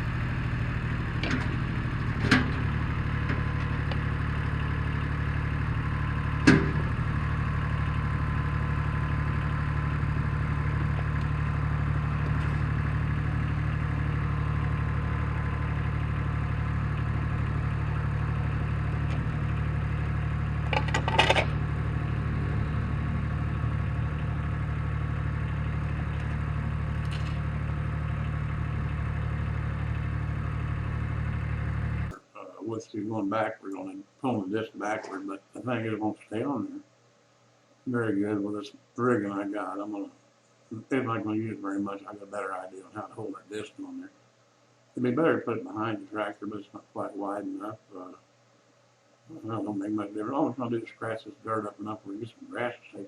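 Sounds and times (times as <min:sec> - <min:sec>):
tractor engine running: 0:00.0 - 0:32.2.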